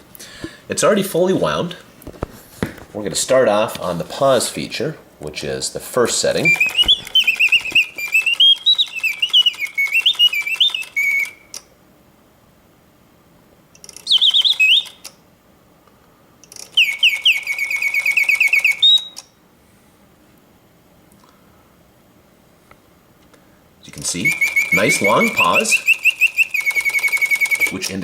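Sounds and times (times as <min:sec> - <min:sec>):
mechanical bird whistle warbling: 0:06.4 - 0:11.6, 0:13.9 - 0:15.1, 0:16.7 - 0:19.3, 0:24.0 - 0:27.9.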